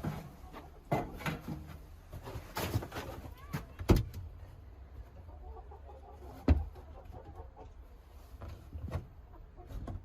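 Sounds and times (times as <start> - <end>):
hens clucking softly: 4.6 - 10.0.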